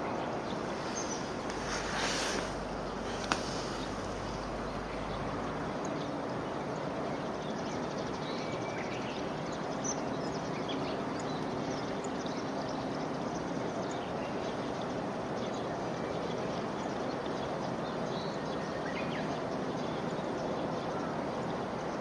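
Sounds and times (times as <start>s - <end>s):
rushing hiss: 0.4s - 5.6s.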